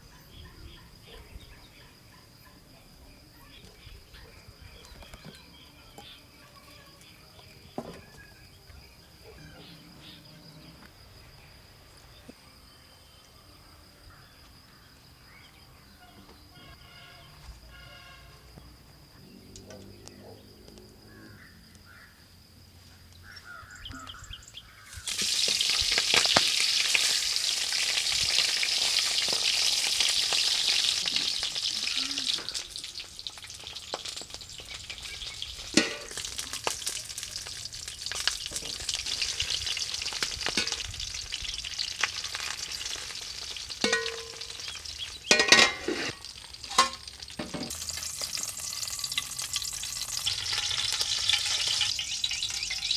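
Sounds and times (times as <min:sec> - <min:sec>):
food frying in hot oil: 0:24.9 - 0:52.9.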